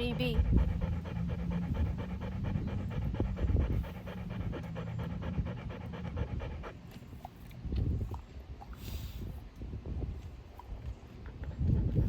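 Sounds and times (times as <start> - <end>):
dog panting: 0.0 - 7.6, 10.7 - 12.0.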